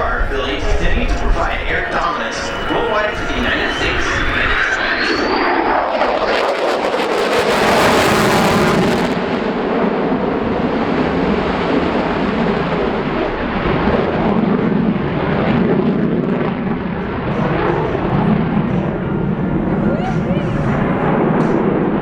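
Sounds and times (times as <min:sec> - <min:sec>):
jet engine rumble: 0:00.0 - 0:22.0.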